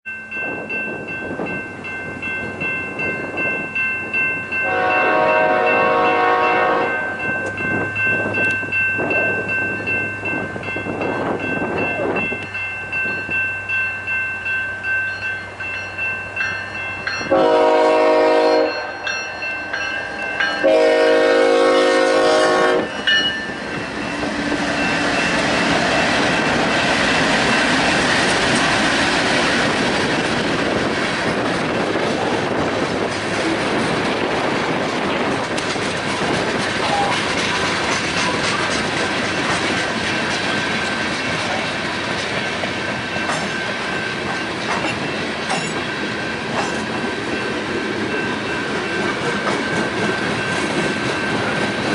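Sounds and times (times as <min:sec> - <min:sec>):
train rumbling past: 0:00.1 - 0:51.9
train horn blasts: 0:04.6 - 0:07.2, 0:17.2 - 0:19.2, 0:20.5 - 0:23.2
wheels clattering on rail joints: 0:18.6 - 0:51.9.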